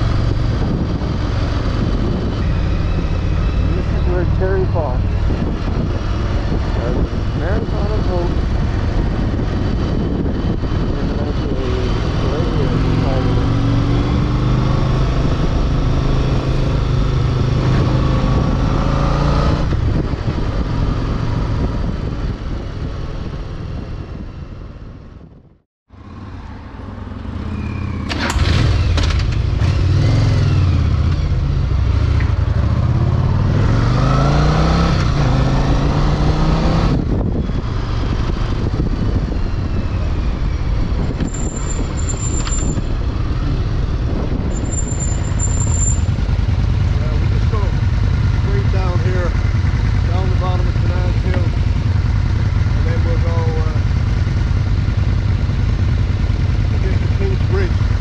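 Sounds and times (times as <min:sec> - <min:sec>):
wind noise: 0:00.0 - 0:25.6, 0:31.2 - 0:56.3
motorcycle engine running: 0:34.7 - 0:58.0.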